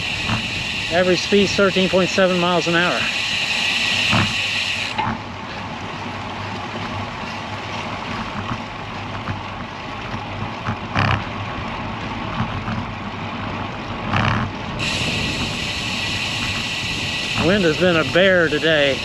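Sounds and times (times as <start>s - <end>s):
road and tyre noise: 0.0s - 19.0s
wind buffeting microphone: 5.1s - 19.0s.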